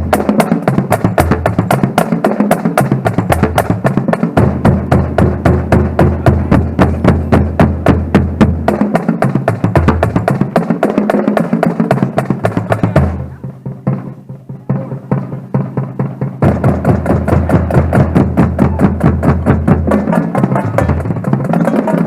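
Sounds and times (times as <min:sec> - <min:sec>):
marching band playing: 0:00.0 - 0:22.0.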